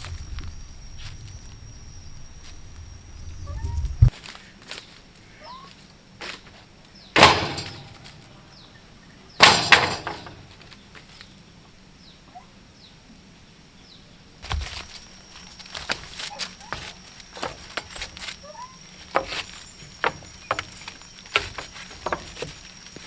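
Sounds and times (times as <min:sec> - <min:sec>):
faint bird chirps: 0:00.0 - 0:04.6, 0:05.2 - 0:05.8, 0:14.8 - 0:23.0
heavy knocks: 0:07.2 - 0:08.3, 0:09.4 - 0:10.6, 0:14.4 - 0:23.0.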